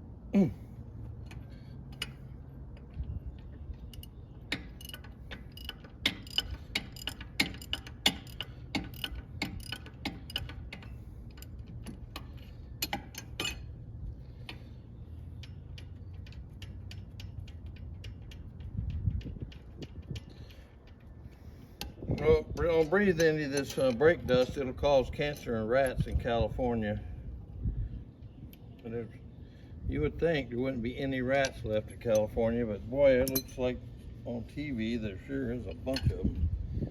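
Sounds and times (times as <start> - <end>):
steady low hum: 0.0 - 36.9
metallic clicks of hand tools: 3.9 - 13.6, 15.4 - 21.0, 21.8 - 24.5.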